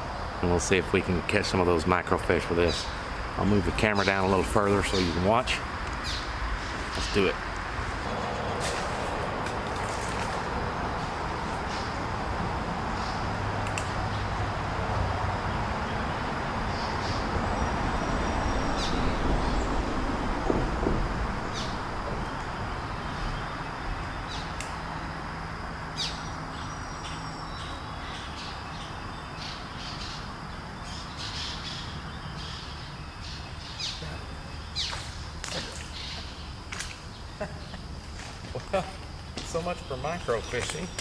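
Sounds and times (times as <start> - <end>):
birds chirping and squawking: 1.4 - 24.6.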